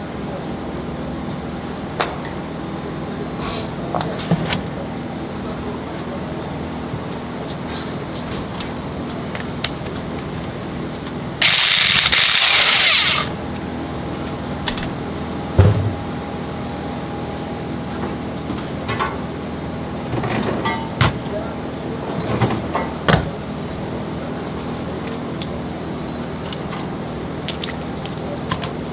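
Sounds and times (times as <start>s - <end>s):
workshop hum: 0.0s - 28.9s
power tool running: 11.4s - 13.4s.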